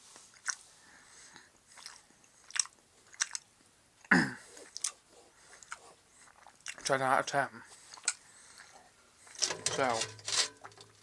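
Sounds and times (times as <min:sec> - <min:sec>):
person chewing chocolate: 0:00.2 - 0:00.7, 0:01.3 - 0:07.0
wet mouth clicks: 0:01.8 - 0:03.5.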